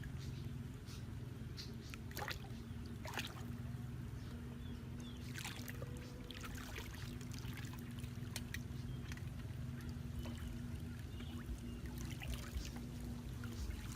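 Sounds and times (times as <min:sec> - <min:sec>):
steady low hum: 0:00.0 - 0:13.9
water splashing and trickling: 0:00.0 - 0:13.9.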